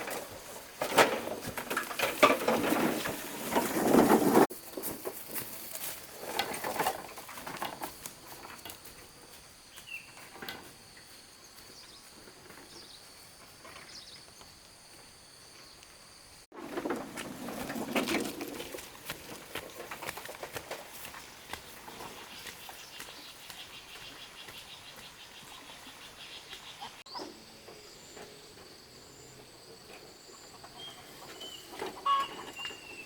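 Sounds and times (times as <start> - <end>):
rustling and scraping: 0.0 - 9.4, 16.5 - 24.7
bird chirps: 22.0 - 28.4, 30.4 - 33.0.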